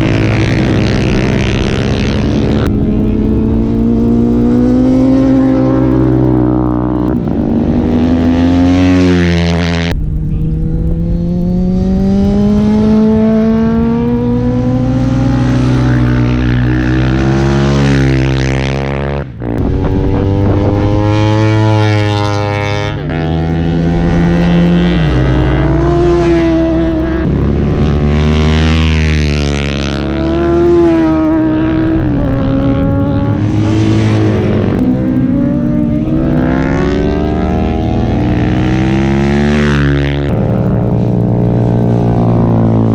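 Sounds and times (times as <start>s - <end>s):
superbike engines revving: 0.0s - 42.9s.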